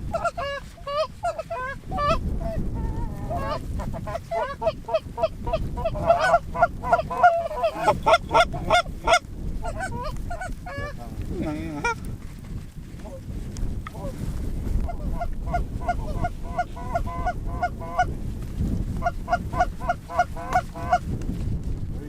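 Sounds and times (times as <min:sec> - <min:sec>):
low wind rumble on microphone: 0:00.0 - 0:22.0
goose honks and clucks: 0:00.1 - 0:11.0, 0:11.8 - 0:12.0, 0:14.9 - 0:18.1, 0:19.0 - 0:21.0.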